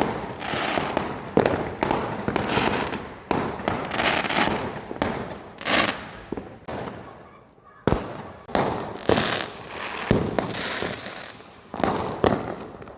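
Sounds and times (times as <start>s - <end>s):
fireworks bangs: 0.0s - 12.9s
fireworks crackling: 0.0s - 12.9s.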